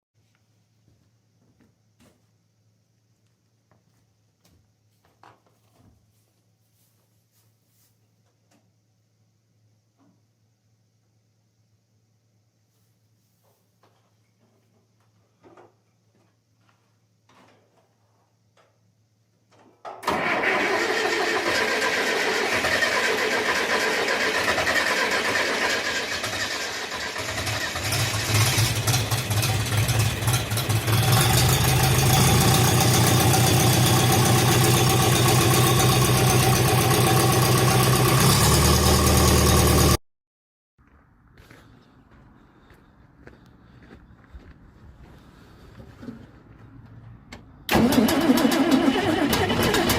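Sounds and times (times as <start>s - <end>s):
diesel tractor engine starting: 20.0s - 40.0s, 46.1s - 49.9s.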